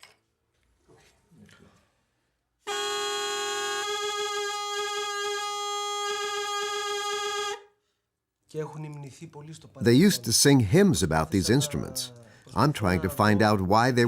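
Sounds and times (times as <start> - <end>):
bagpipe reedy tone: 2.7 - 7.8.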